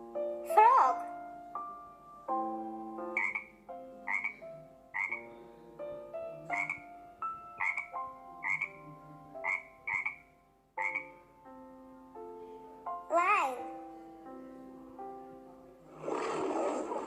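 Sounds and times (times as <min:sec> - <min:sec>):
frog croaking: 0:03.1 - 0:05.4, 0:06.5 - 0:07.0, 0:07.6 - 0:08.8, 0:09.4 - 0:11.2.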